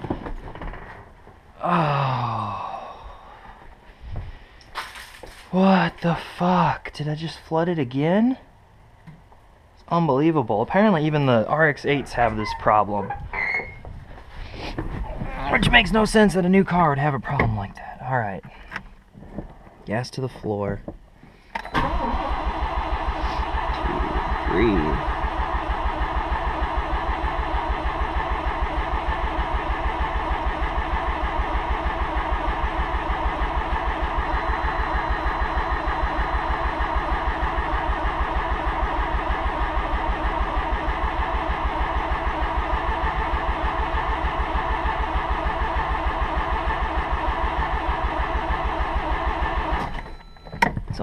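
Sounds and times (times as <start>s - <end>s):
starter cranking engine: 21.6s - 50.0s.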